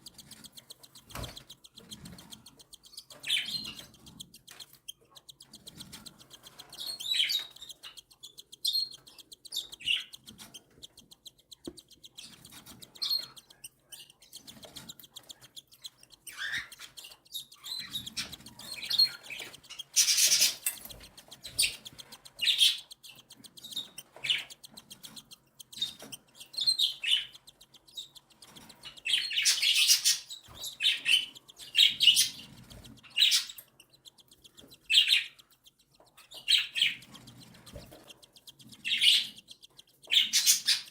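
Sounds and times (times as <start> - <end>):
chicks cheeping: 0.0 - 40.9.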